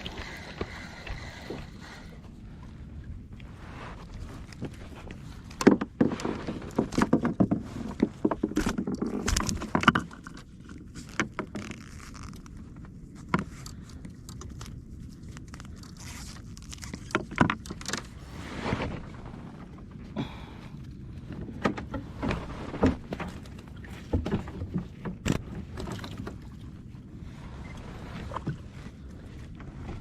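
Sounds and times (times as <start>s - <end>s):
fishing gear knocking and rattling: 5.5s - 10.4s.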